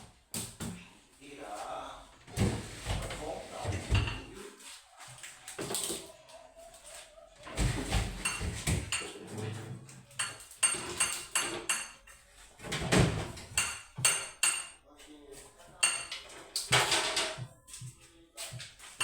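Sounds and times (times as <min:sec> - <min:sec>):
dishes clinking and knocking: 0:02.4 - 0:04.4, 0:07.5 - 0:14.8, 0:15.8 - 0:17.6.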